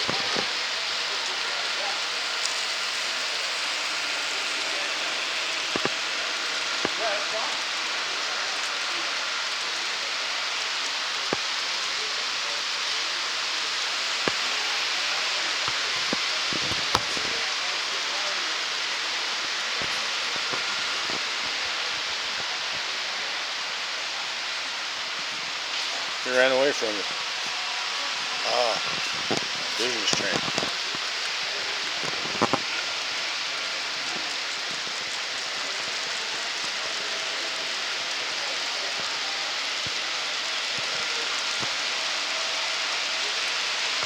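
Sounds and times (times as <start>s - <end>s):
faint distant voices: 0.0s - 44.0s
steady background hiss: 0.0s - 44.0s
faint clicks: 13.8s - 17.5s.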